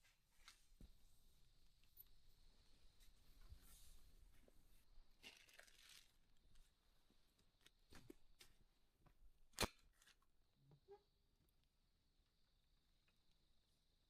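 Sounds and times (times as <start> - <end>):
handling rustling: 4.3 - 6.8.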